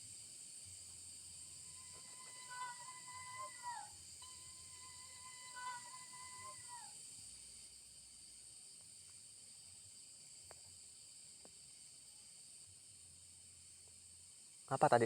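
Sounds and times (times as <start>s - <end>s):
night insects chirping: 0.0s - 15.0s
held tone: 4.2s - 5.8s.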